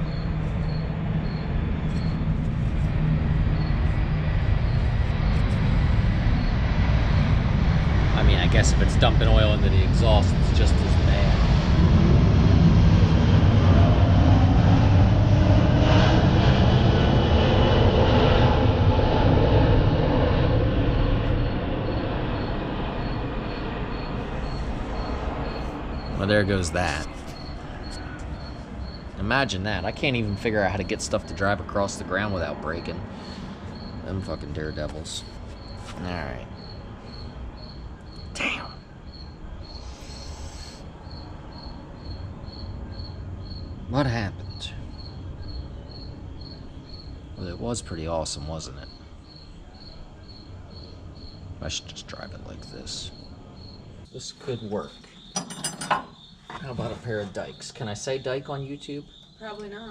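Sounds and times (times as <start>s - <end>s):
low steady rumble: 0.0s - 38.2s
insects chirping: 0.0s - 59.9s.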